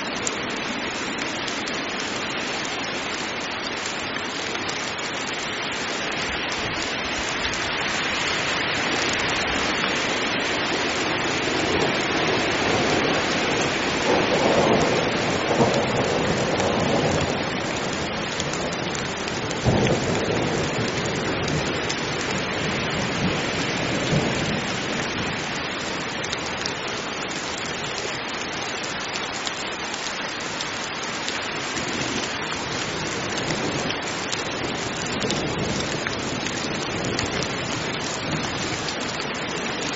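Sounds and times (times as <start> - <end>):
heavy rain: 0.0 - 39.9
thunder rumbling: 10.6 - 25.5.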